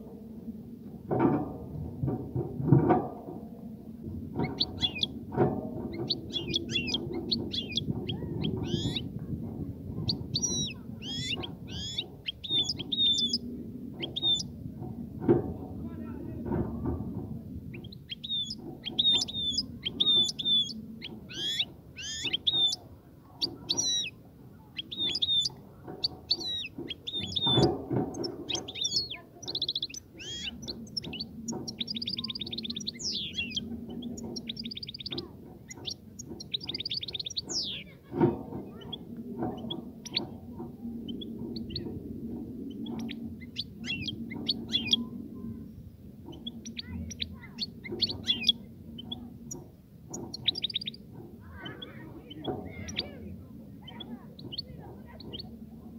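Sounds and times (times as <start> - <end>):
low steady background noise: 0.0 - 55.9
goldfinch twittering song: 4.3 - 5.2, 5.8 - 9.1, 10.0 - 13.4, 14.0 - 14.5, 17.7 - 22.8, 23.4 - 38.0, 38.8 - 40.3, 42.7 - 45.1, 46.2 - 51.0, 51.6 - 53.1.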